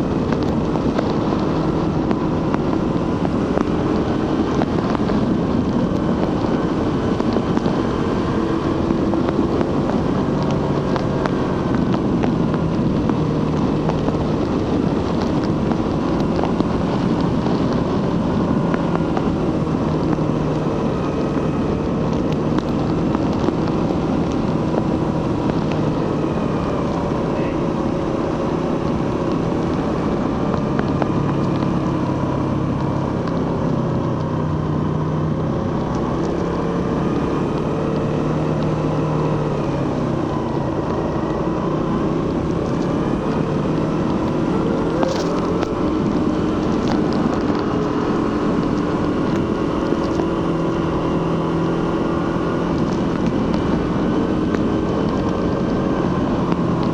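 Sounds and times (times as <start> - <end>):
motorcycle engine cruising: 0.0 - 56.9
wind rushing over microphone: 0.0 - 56.9.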